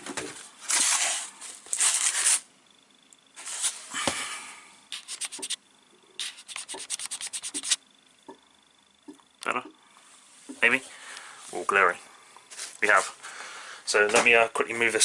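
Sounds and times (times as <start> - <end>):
cloth rubbing a surface: 3.4 - 3.9, 6.2 - 7.8.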